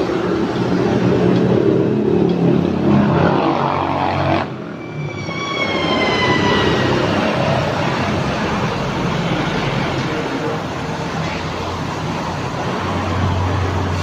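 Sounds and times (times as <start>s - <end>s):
loud deep engine exhaust: 0.0s - 4.9s
high whine falling in pitch: 3.0s - 9.5s.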